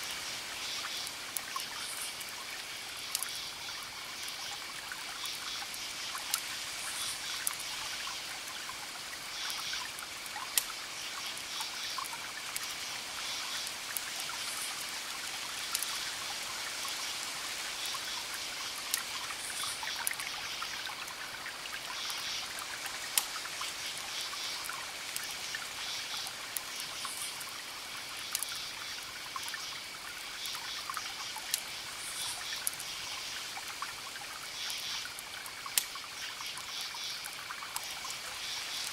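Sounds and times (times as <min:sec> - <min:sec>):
wood fire crackling: 0:00.9 - 0:03.3, 0:09.4 - 0:10.8, 0:11.7 - 0:16.0, 0:22.5 - 0:29.0, 0:33.6 - 0:36.2.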